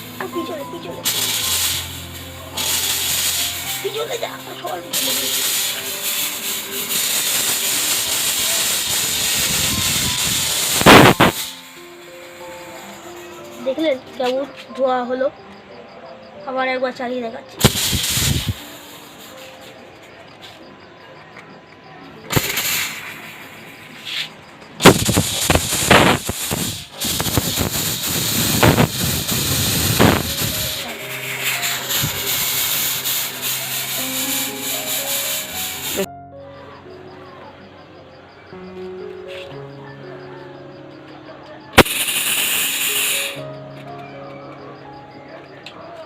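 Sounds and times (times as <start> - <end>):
fog machine hissing: 0.0 - 14.3, 17.6 - 20.6, 21.6 - 36.1, 41.7 - 43.7
loud bursts of noise: 1.0 - 13.0, 17.6 - 19.4, 22.3 - 24.0, 24.8 - 36.1, 41.8 - 43.4.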